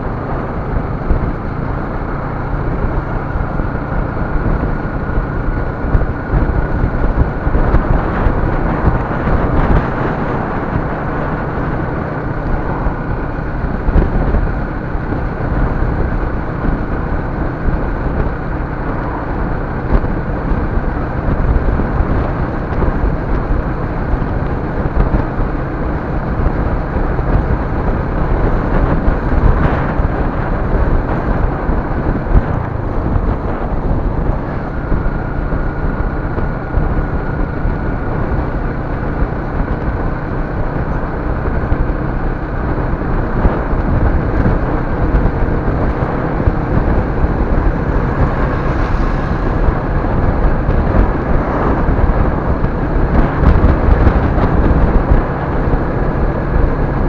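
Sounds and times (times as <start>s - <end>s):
vehicle road and engine rumble: 0.0s - 57.0s.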